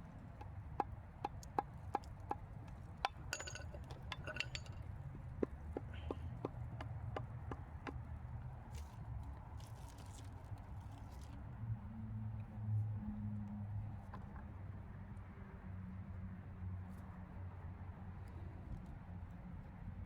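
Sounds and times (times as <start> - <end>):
ringing metallic clinks: 3.1 - 4.8
tools clicking on metal: 3.1 - 4.8.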